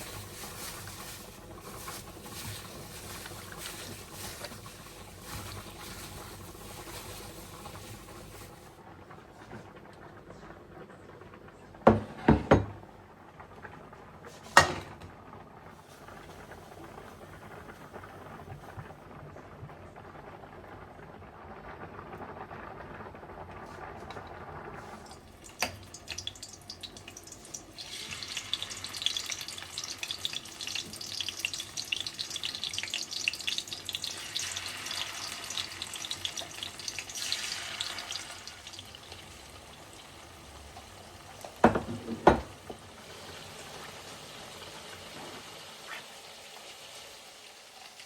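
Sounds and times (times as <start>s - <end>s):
food sizzling in hot oil: 0.0s - 8.8s, 24.8s - 48.0s.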